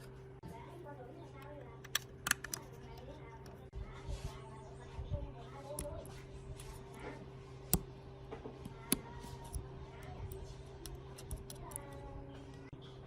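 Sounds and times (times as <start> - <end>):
steady low hum: 0.0 - 13.0
small parts clicking and tapping: 1.4 - 3.7, 8.6 - 12.6
sharp clicks: 1.8 - 2.8, 10.3 - 12.0.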